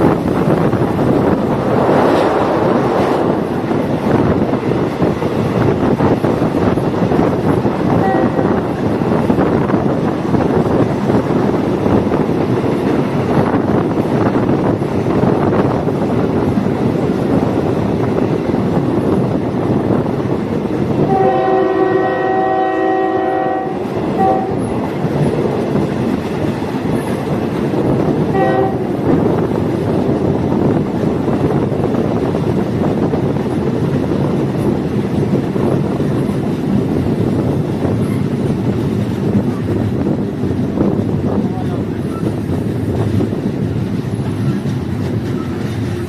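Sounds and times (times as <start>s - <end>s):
train rumbling on track: 0.0s - 46.0s
train horn: 7.9s - 8.7s, 21.1s - 24.7s, 28.3s - 29.1s.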